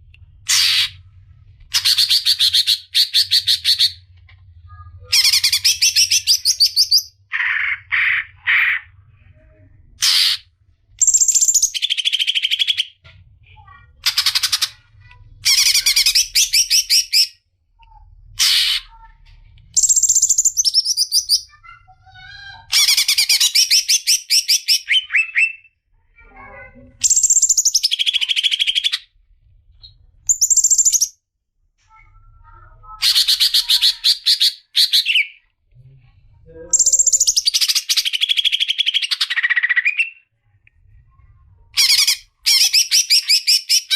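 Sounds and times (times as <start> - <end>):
bird chattering song: 5.1 - 8.9, 11.0 - 13.0, 13.6 - 19.1, 19.8 - 21.8, 27.0 - 29.1, 30.3 - 31.2, 36.7 - 40.2, 41.8 - 43.9.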